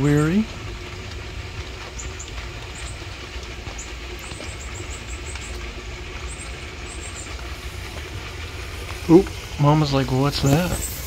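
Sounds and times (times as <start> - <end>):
low rumble: 0.0 - 11.0
steady rain falling: 0.0 - 11.0.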